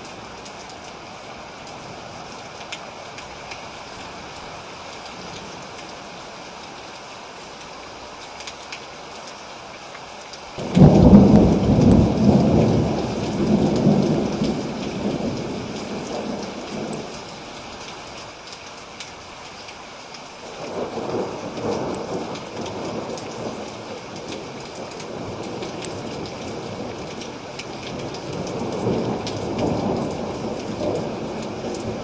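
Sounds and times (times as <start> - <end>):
steady rain: 0.0 - 32.0
thunder rumbling: 10.6 - 17.9, 20.5 - 32.0.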